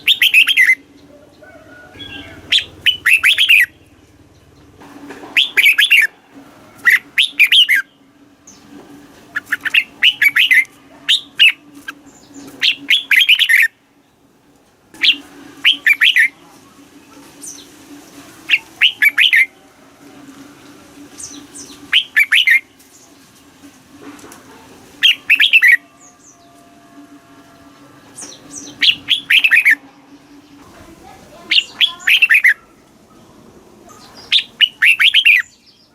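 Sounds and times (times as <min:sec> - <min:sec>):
bird singing warbled phrases: 0:00.0 - 0:04.7, 0:05.4 - 0:06.1, 0:06.8 - 0:08.7, 0:09.3 - 0:14.3, 0:15.0 - 0:16.4, 0:18.5 - 0:19.6, 0:21.2 - 0:23.1, 0:25.0 - 0:26.6, 0:28.2 - 0:35.9
faint steady hum: 0:00.0 - 0:35.9.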